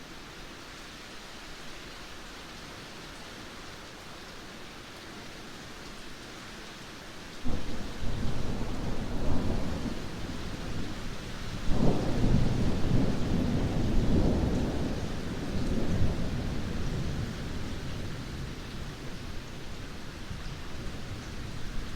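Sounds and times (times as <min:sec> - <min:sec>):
heavy rain: 0:00.0 - 0:21.9
thunder rumbling: 0:07.5 - 0:18.5.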